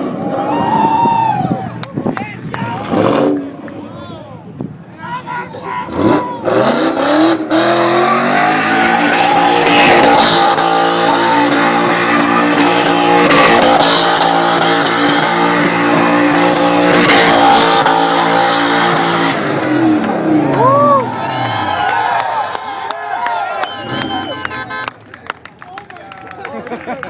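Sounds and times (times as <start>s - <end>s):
car engine at high revs: 2.7s - 3.7s, 5.9s - 21.8s.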